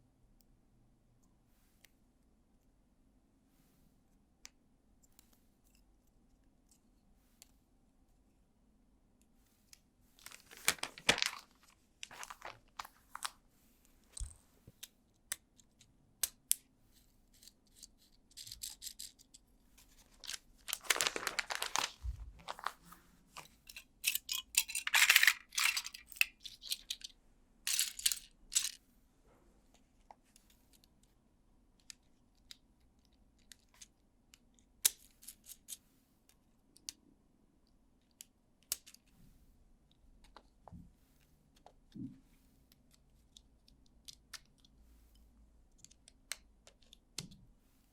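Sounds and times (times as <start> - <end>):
plastic bags tearing and crinkling: 10.2 - 13.3, 20.1 - 22.8
plastic pieces clicking: 17.4 - 19.4, 23.4 - 27.1, 27.7 - 28.8.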